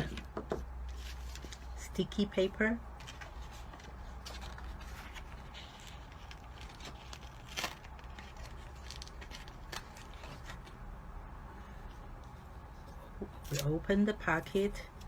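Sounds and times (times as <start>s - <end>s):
steady low hum: 0.0s - 15.0s
glue paper rustling and scraping: 3.0s - 10.8s.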